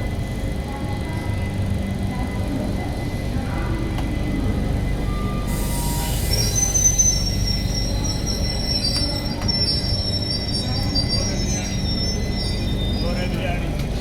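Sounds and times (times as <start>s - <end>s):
train wheels and brakes squealing: 5.0s - 13.7s.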